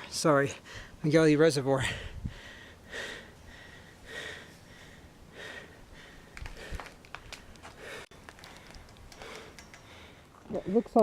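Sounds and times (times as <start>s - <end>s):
person breathing hard: 1.8s - 10.4s.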